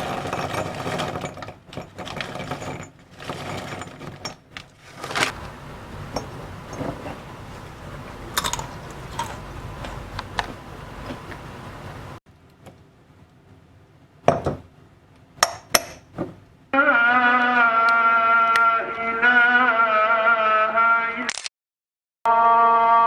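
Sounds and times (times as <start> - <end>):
low steady hum: 0.0 - 16.8
dishes and utensils clinking: 5.2 - 11.5.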